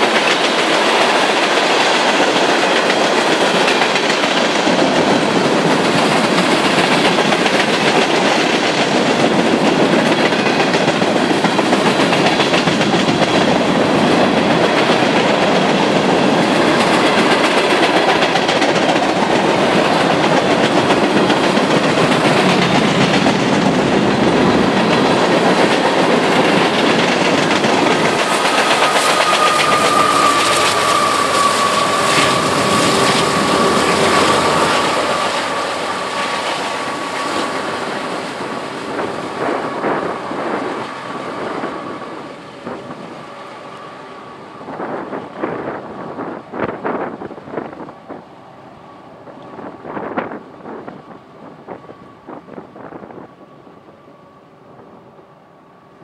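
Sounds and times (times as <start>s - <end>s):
train wheels clacking over rail joints: 0.0s - 44.0s
diesel locomotive high whine: 0.0s - 56.0s.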